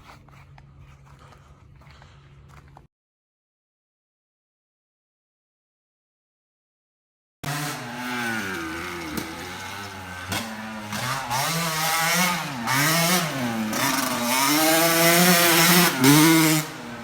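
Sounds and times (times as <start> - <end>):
off-road vehicle engine revving: 7.4 - 17.0.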